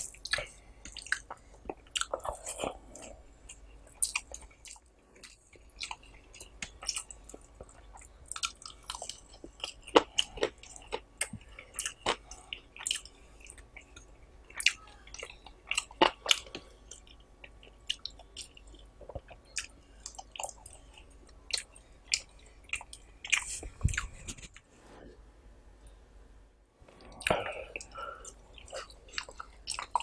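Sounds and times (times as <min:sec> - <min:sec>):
wet chewing clicks and smacks: 0:27.0 - 0:30.0.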